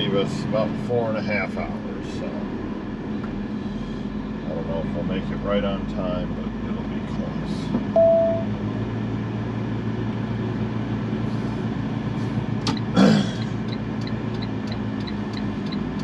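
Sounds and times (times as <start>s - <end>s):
diesel truck engine idling: 0.0s - 16.0s
light ticking: 13.6s - 16.0s.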